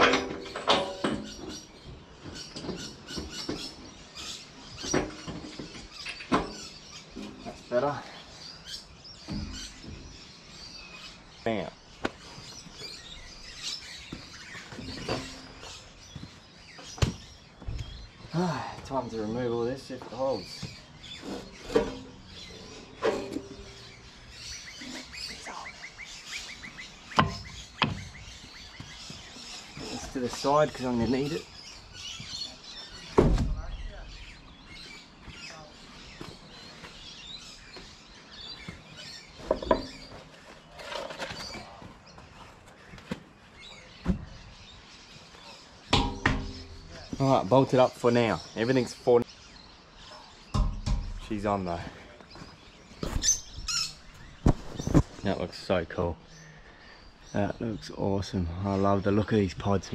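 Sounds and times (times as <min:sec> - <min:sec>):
birds chirping: 0:00.0 - 0:59.9
sharp knocks: 0:27.1 - 0:28.1, 0:45.9 - 0:46.9
knocks: 0:45.9 - 0:46.8.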